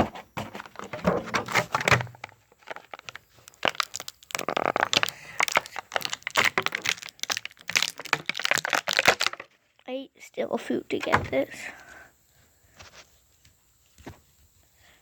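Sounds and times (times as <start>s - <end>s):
cardboard crinkling and tearing: 0.5s - 9.6s
plastic cracking and clicking: 0.7s - 9.6s.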